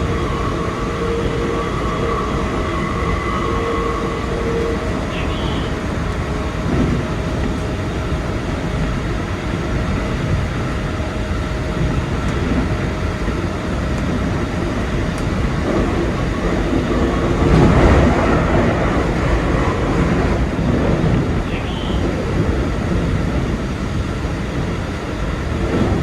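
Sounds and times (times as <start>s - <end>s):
electric train running on rails: 0.0s - 26.0s.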